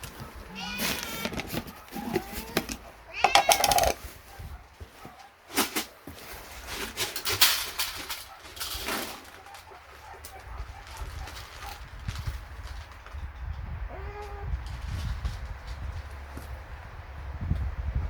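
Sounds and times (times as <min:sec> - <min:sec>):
scuffing and crackling: 0:00.0 - 0:02.9, 0:03.6 - 0:13.1
cat meowing: 0:00.5 - 0:04.0, 0:13.9 - 0:14.6.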